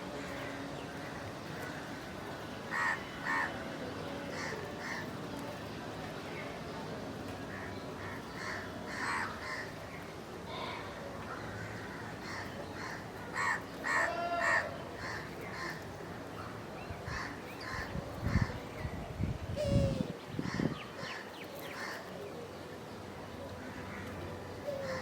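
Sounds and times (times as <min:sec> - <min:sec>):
crows cawing: 0:02.7 - 0:03.5, 0:07.5 - 0:09.7, 0:11.4 - 0:15.8.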